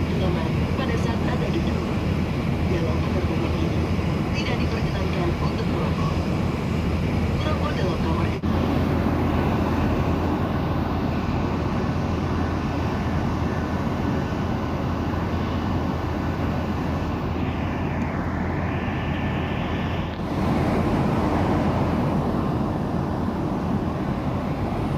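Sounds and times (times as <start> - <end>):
jet engine and airflow noise: 0.0 - 24.9.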